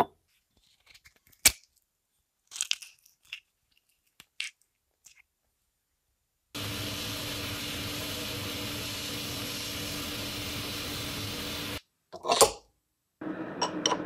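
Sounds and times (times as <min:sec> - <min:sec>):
machine humming and hissing: 0:06.6 - 0:11.8.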